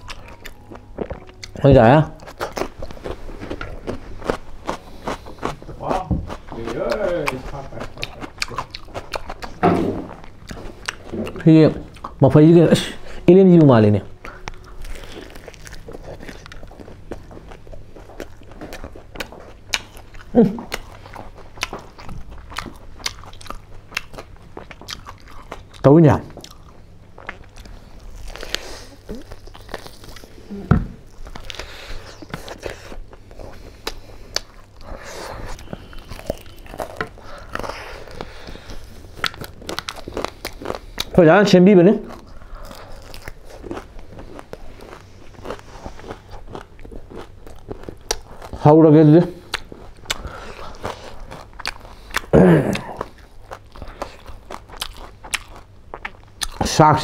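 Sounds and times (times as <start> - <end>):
chewing and mouth noises: 0.0 - 57.0
loud thump: 9.6 - 10.1.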